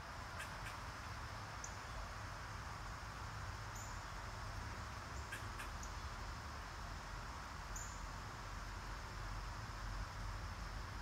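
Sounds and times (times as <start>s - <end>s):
faint hiss and low rumble: 0.0s - 11.0s
small birds chirping: 7.7s - 8.1s.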